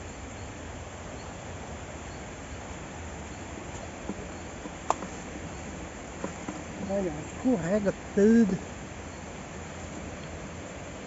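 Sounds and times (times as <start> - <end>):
insect chirps: 0.0 - 11.0.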